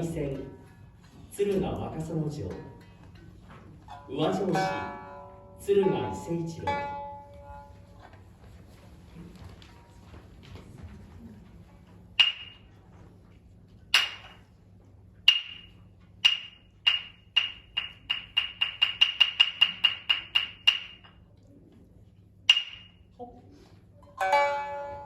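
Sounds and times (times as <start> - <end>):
wooden clappers struck: 12.2 - 12.8, 13.9 - 14.6, 15.2 - 21.2, 22.5 - 23.1.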